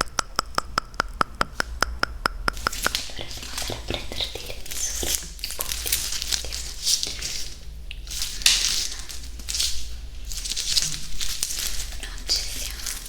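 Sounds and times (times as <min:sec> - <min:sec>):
crackly mouth sounds: 0:00.0 - 0:13.0.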